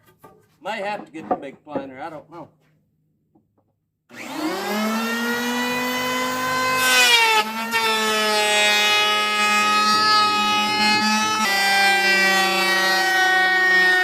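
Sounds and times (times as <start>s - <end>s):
electric planer motor whine: 4.1s - 14.0s.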